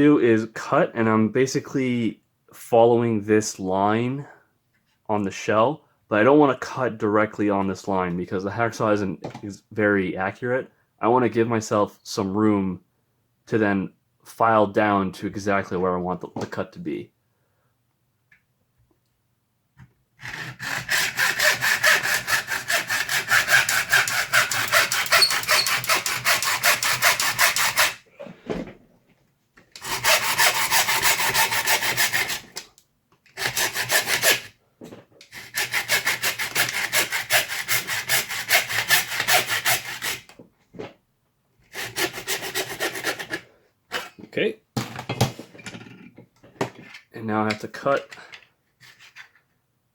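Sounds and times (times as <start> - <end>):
hacksaw cutting hard plastic: 20.2 - 28.0, 29.8 - 32.7, 33.3 - 34.5, 35.2 - 40.3, 41.7 - 44.2.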